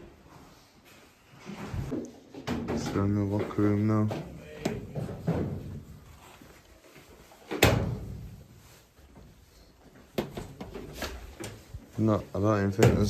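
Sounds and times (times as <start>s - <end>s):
locker doors banging shut: 7.5s - 8.4s, 12.8s - 13.0s.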